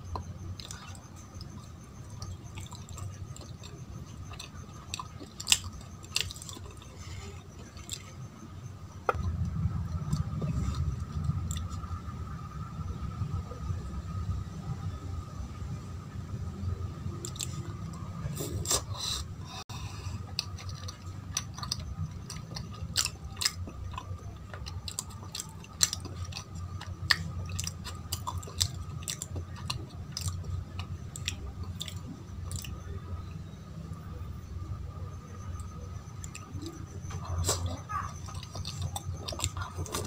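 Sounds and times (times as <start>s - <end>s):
steady low hum: 0.0s - 40.0s
chewing and mouth smacking: 0.1s - 8.2s, 10.0s - 11.8s, 17.2s - 19.3s, 20.2s - 33.0s, 35.6s - 40.0s.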